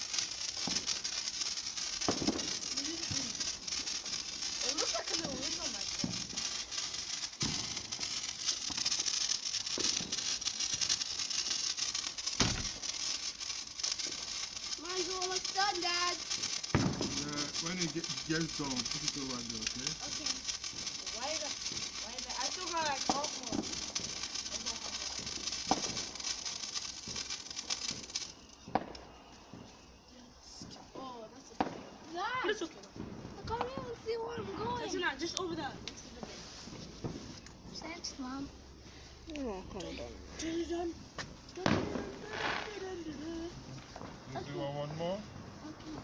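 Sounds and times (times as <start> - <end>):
sparklers fizzing and crackling: 0.0 - 46.0
dull thump: 12.4 - 12.7.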